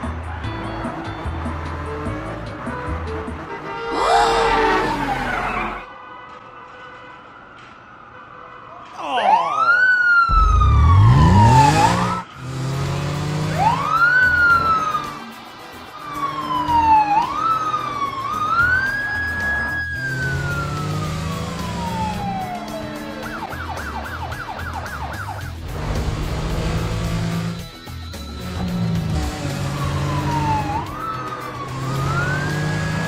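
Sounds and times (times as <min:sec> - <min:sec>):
siren wailing: 0:03.9 - 0:05.8, 0:09.1 - 0:12.3, 0:13.4 - 0:15.3, 0:16.0 - 0:25.6, 0:26.6 - 0:33.0
low rumble: 0:10.3 - 0:11.7.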